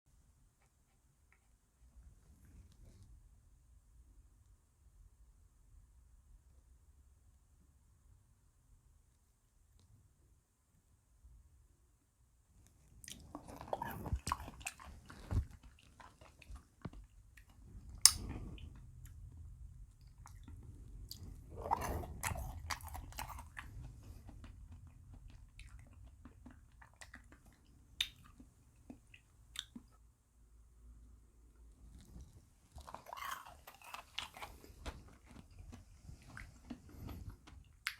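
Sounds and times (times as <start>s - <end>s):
chewing and crunching ice cream: 12.9s - 30.0s, 31.8s - 37.9s.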